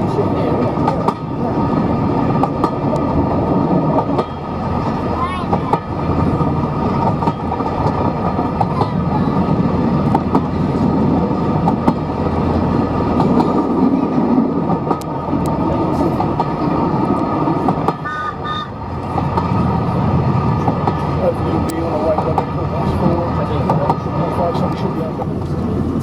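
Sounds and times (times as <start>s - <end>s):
steam locomotive running: 0.0s - 26.0s
train whistle toots: 18.0s - 18.8s.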